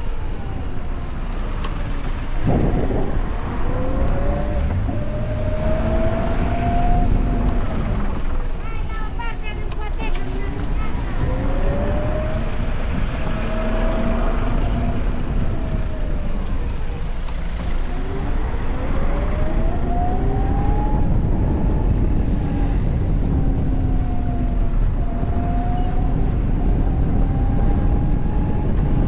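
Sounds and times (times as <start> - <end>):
wind and road noise: 0.0 - 29.0.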